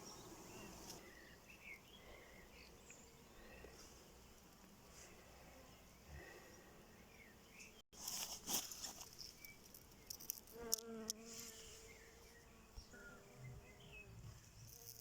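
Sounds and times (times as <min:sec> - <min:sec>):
insects chirping and buzzing: 0:08.7 - 0:15.0.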